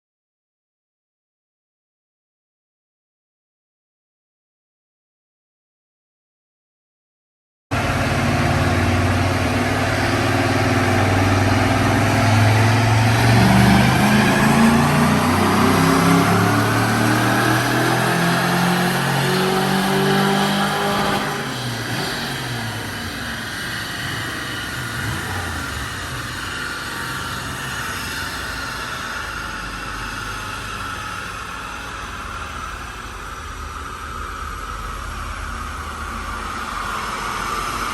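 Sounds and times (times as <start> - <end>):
engine revving under throttle: 7.7 - 37.9.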